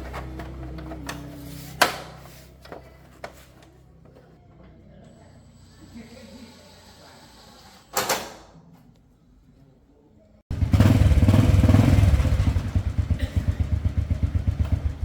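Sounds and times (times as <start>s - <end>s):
motorbike engine running: 10.5s - 15.0s.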